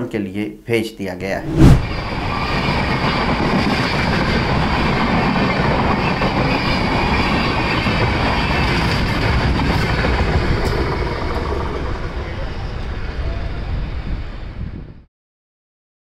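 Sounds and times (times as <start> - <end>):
train wheels on rails: 1.8 - 13.0.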